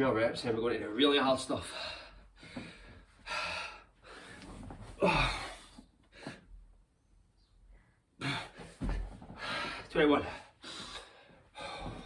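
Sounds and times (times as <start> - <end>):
man breathing hard: 1.6 - 6.6, 8.2 - 12.0.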